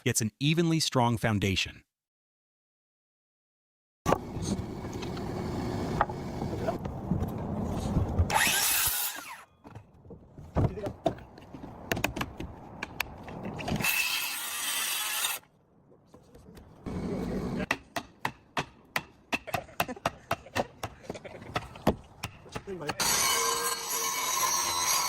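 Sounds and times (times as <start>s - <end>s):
power tool cutting wood: 8.3s - 9.4s, 13.8s - 15.4s, 23.0s - 25.0s.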